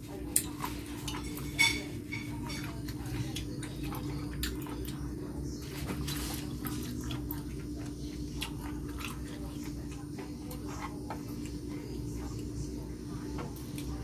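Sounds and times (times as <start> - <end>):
steady low hum: 0.0 - 14.0
wet chewing: 2.3 - 12.6.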